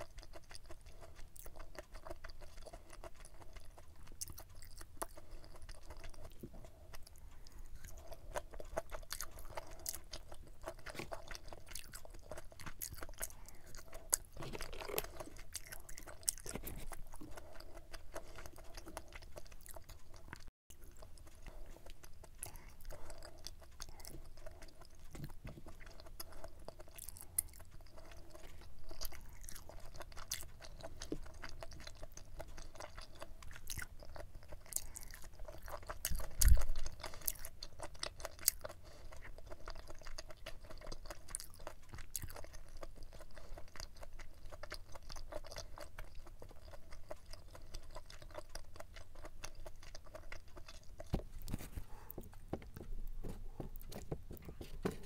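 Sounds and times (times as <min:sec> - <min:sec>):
close chewing: 0:00.0 - 0:55.0.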